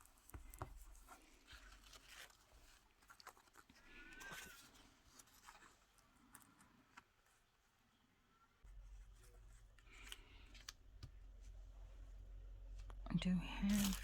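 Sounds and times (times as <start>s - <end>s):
paper rustling and clicking: 0.0s - 7.2s.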